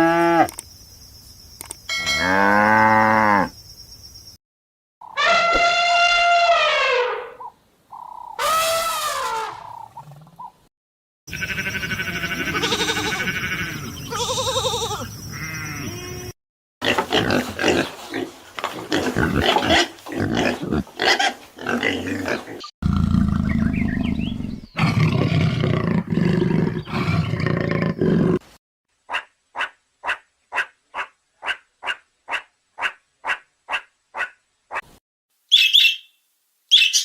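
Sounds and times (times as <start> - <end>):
pitched animal calls: 11.3 - 16.3
low animal roar: 21.6 - 28.4
evenly spaced short animal calls: 29.1 - 36.1.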